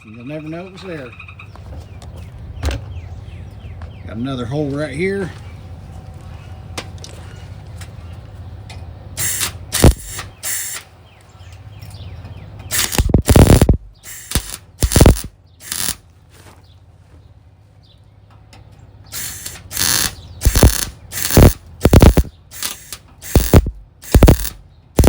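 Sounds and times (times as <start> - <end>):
welder crackling: 9.2 - 10.8, 12.7 - 16.0, 19.1 - 25.0.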